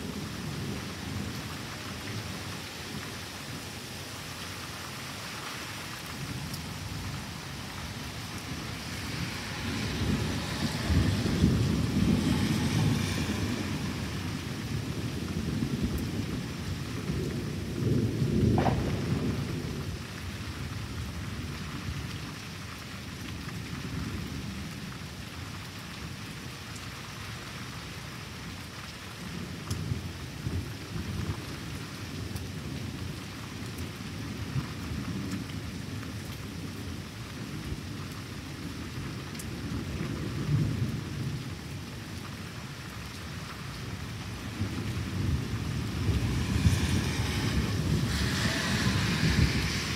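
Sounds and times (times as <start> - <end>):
steady rain: 0.0 - 49.9
thunder rumbling: 6.1 - 21.5, 43.9 - 49.9.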